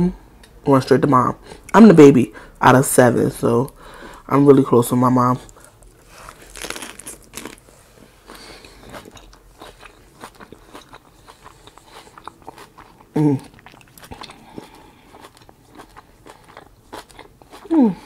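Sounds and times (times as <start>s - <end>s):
person's voice: 0.0s - 3.7s, 4.3s - 5.5s
crunchy lettuce chewing: 5.4s - 17.9s.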